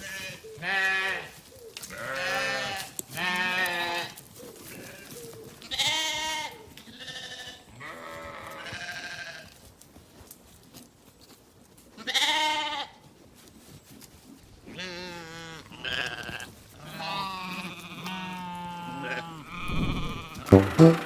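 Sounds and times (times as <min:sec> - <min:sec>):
animal bleating: 0:00.0 - 0:05.1, 0:05.7 - 0:09.5, 0:12.0 - 0:13.0, 0:14.7 - 0:20.6.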